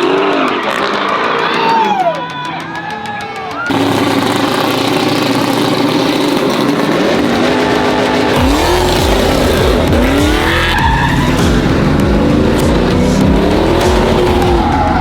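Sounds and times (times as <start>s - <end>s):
tyres squealing: 0.0s - 15.0s
truck engine revving: 3.7s - 15.0s.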